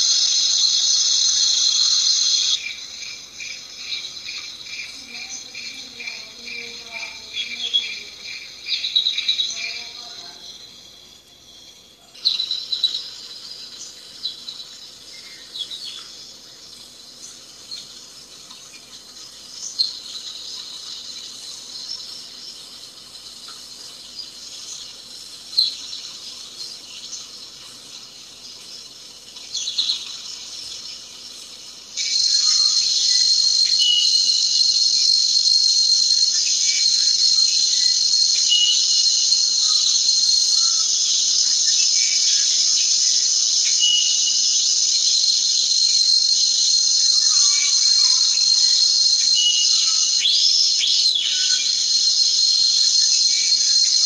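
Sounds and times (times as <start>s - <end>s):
insect chorus: 0.0s - 54.0s.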